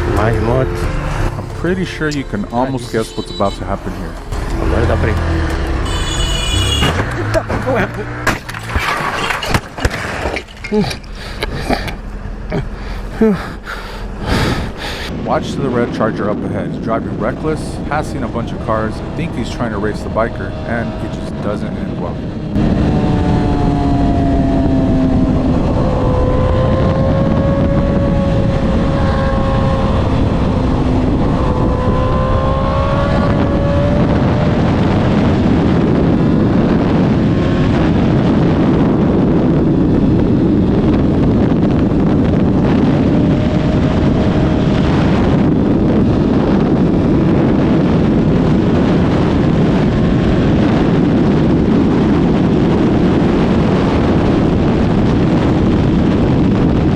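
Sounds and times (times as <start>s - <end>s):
engine note rising and falling: 0.0s - 8.8s, 10.7s - 56.9s
wind noise on microphone: 0.0s - 56.9s.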